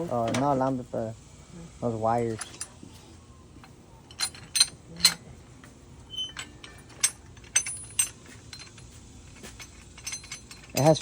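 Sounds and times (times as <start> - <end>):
metal bolts clinking: 2.4 - 2.8, 3.6 - 5.2, 6.0 - 11.0.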